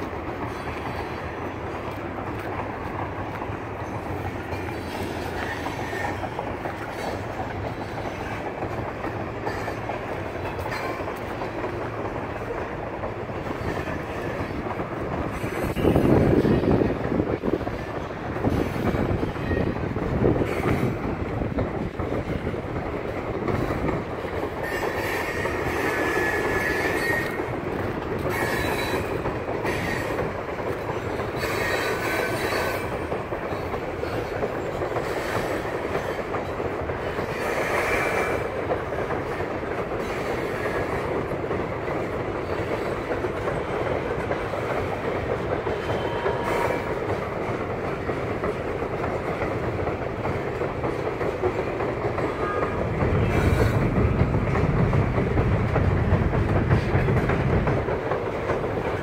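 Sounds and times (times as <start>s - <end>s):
train wheels rumbling over bridge: 0.0s - 59.0s
high wheel squeals: 3.8s - 6.3s, 24.6s - 27.4s, 28.2s - 30.2s, 31.1s - 33.0s.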